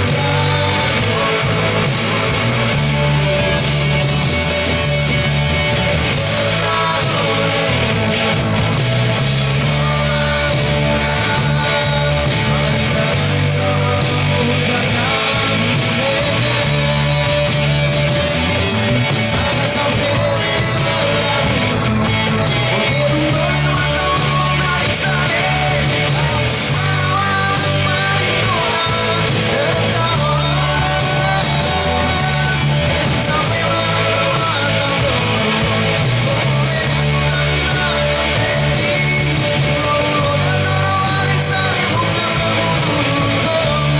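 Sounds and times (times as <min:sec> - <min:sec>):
amplified instruments: 0:00.0 - 0:43.9
drum beat: 0:00.0 - 0:43.9
person singing: 0:00.0 - 0:43.9.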